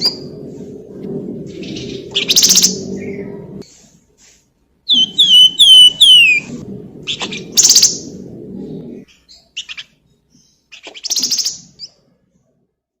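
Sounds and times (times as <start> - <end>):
songbird whistled notes: 4.9 - 6.5.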